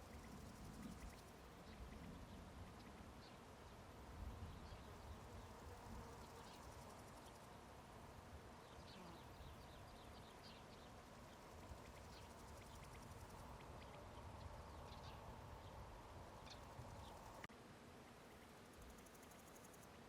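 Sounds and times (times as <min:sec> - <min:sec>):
high chirps and ticks: 0:00.0 - 0:03.1, 0:10.7 - 0:15.3
steady low hiss: 0:00.0 - 0:20.0.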